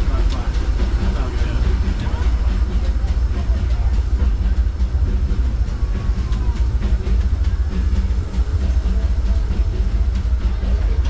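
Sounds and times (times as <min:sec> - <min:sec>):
train wheel clicks: 0:00.0 - 0:06.5
train rumbling on track: 0:00.0 - 0:11.0.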